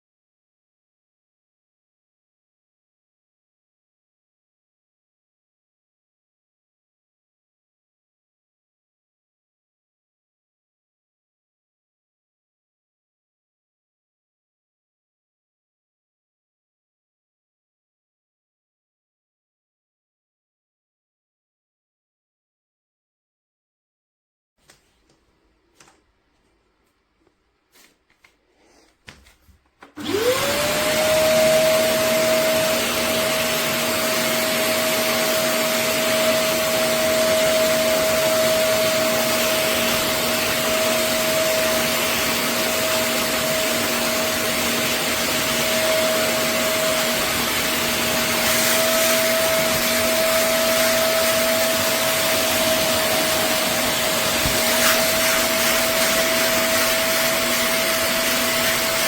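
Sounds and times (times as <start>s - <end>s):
cleaner suction motor whining: 30.0s - 59.0s.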